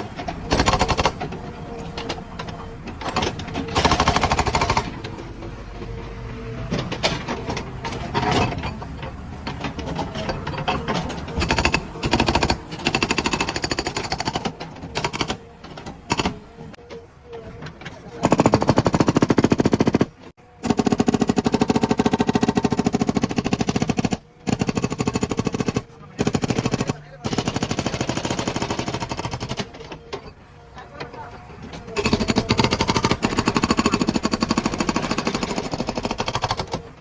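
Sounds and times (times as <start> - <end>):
fast mechanical hammering: 0.0 - 1.4, 3.0 - 5.1, 11.3 - 16.4, 18.2 - 29.9, 32.0 - 37.0.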